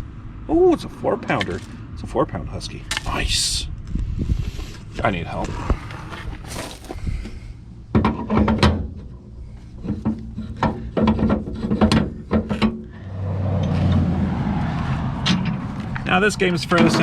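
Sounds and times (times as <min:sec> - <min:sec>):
low hum: 0:08.8 - 0:17.0.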